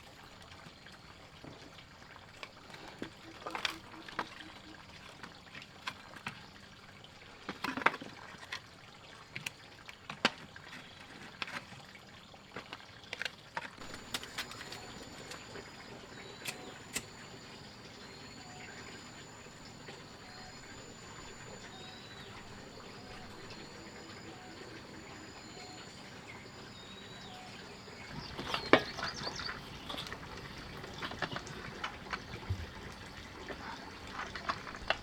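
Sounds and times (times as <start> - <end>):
water trickling: 0.0 - 35.0
thin high tone: 13.8 - 35.0.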